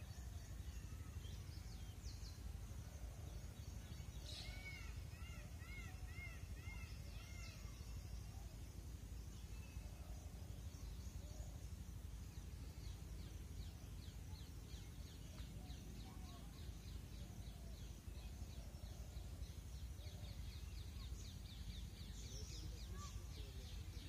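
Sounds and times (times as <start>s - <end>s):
low steady rumble: 0.0s - 24.0s.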